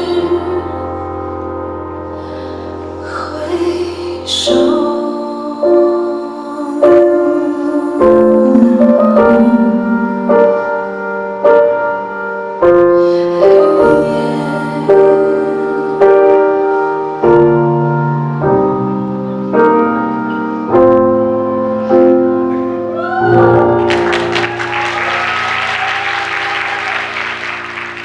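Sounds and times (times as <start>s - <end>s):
slow piano chords: 0.0s - 28.0s
audience applause and cheers: 22.9s - 28.0s.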